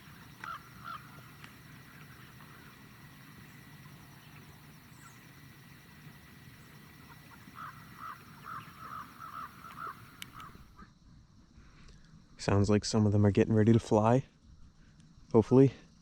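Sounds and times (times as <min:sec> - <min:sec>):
geese honking: 0:00.0 - 0:10.7.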